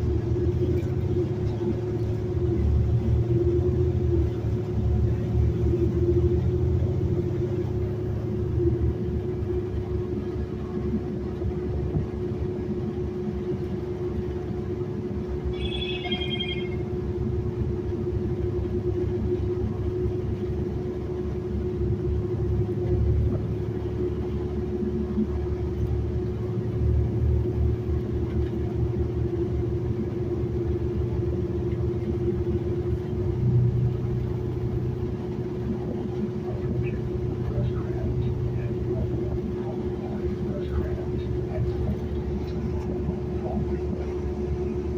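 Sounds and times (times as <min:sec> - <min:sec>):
bus engine and road rumble: 0:00.0 - 0:44.9
constant hum: 0:00.0 - 0:44.9
electronic chime: 0:15.6 - 0:16.8.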